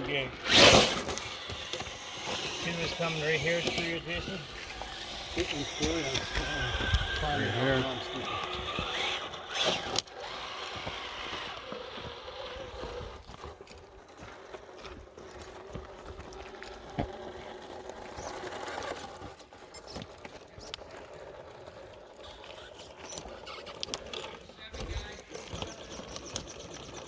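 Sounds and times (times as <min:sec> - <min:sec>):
electric motor whine: 0:00.0 - 0:13.7
tires knocking on rocks: 0:22.8 - 0:27.0.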